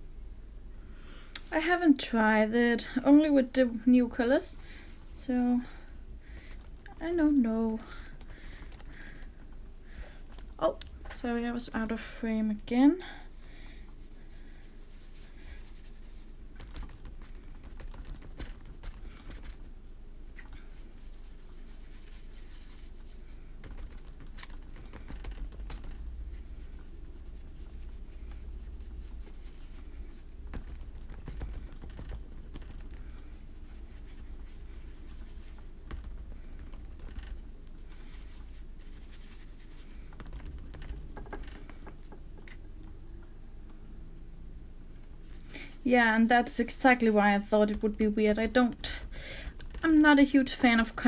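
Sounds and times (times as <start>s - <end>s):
small clicks and taps at a desk: 16.6s - 19.7s, 23.6s - 44.3s
light scratching: 45.3s - 51.0s.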